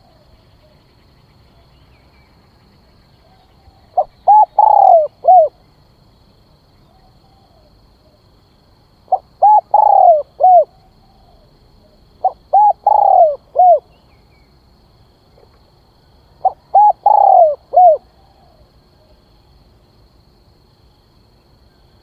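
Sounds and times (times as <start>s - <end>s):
dove cooing: 3.2s - 5.6s, 9.1s - 13.9s, 16.4s - 19.2s.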